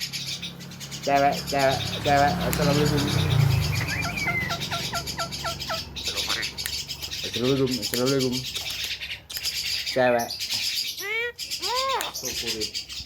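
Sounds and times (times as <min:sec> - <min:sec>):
small birds chirping: 0:00.0 - 0:13.0
voice-like bird syllables: 0:09.8 - 0:13.0.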